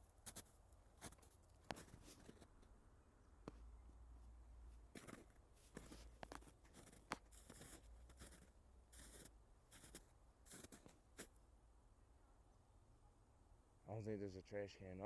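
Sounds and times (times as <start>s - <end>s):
footsteps crunching through snow: 0.2s - 2.6s, 4.8s - 11.4s.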